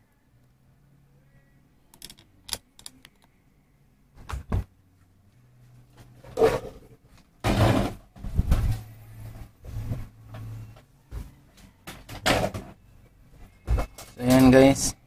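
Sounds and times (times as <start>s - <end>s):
rustling and scraping: 5.6s - 11.8s.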